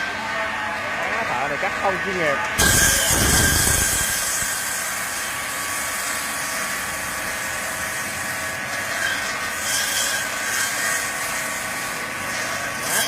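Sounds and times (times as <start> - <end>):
saw blades grinding through ice: 2.6 - 13.0.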